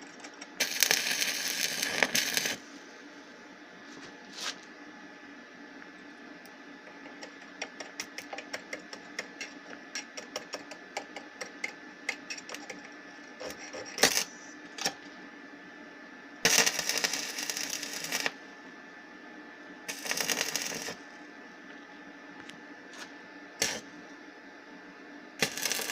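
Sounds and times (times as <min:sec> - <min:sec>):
welder inverter hum: 0:00.0 - 0:25.9
welding wire snapping and clicking: 0:00.3 - 0:02.6, 0:07.1 - 0:15.0, 0:16.5 - 0:18.3, 0:19.9 - 0:21.0, 0:25.4 - 0:25.9
crackling arc welding bursts: 0:00.6 - 0:02.6, 0:14.0 - 0:14.4, 0:16.4 - 0:18.4, 0:19.9 - 0:21.0, 0:23.6 - 0:23.9, 0:25.4 - 0:25.9.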